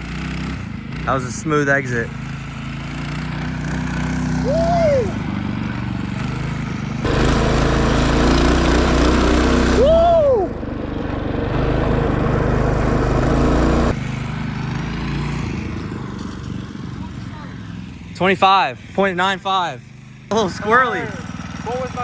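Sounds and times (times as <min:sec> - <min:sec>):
minibike engine running: 0:00.0 - 0:22.0
rising and falling whoop: 0:04.3 - 0:05.4, 0:09.6 - 0:10.7.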